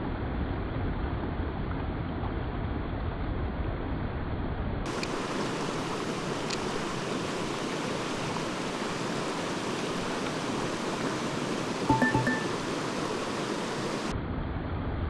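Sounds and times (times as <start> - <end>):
mountain stream running: 4.9 - 14.1.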